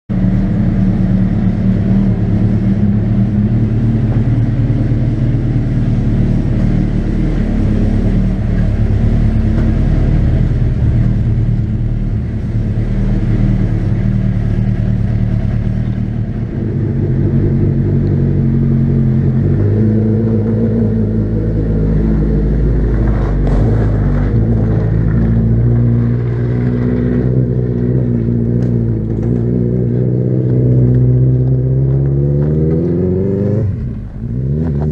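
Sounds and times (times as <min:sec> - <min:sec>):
car engine revving: 0:00.1 - 0:34.9.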